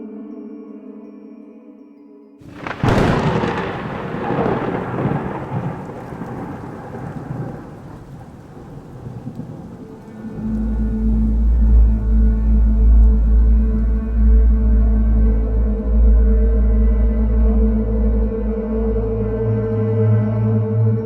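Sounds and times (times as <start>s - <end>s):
steady rain: 2.4s - 16.3s
thunderclap rolling: 2.5s - 13.9s
soft drone tones: 9.6s - 21.0s
deep low tone: 10.4s - 21.0s.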